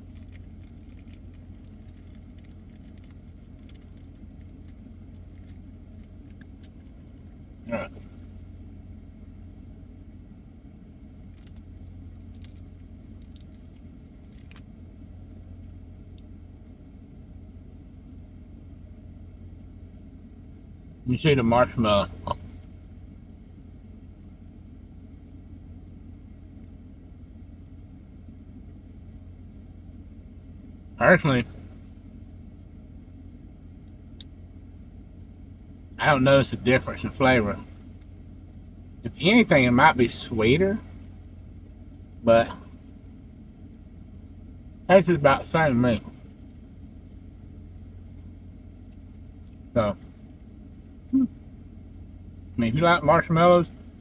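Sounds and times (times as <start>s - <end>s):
light ticks and crinkles: 0.0s - 8.5s, 10.2s - 20.8s, 22.2s - 30.8s, 31.4s - 36.0s, 37.5s - 39.0s, 46.0s - 52.3s
car cabin engine hum: 0.0s - 54.0s.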